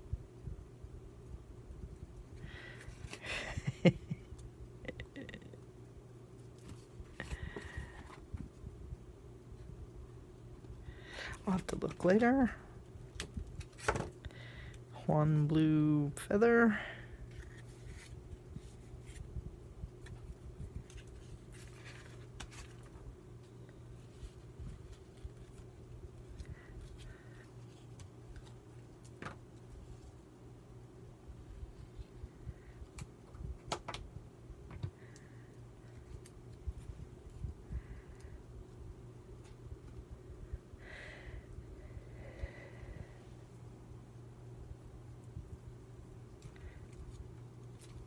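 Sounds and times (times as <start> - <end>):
steady low hum: 0.0 - 48.0
paper rustling and crinkling: 17.3 - 19.3, 19.9 - 30.2.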